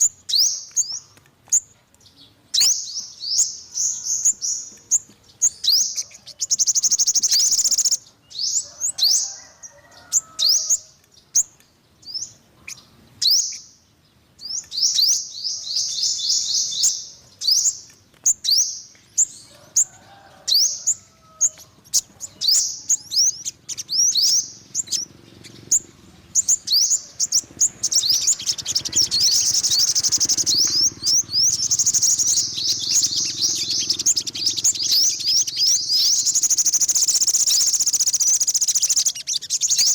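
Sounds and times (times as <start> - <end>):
sunbird chirping trill: 0.0 - 39.9.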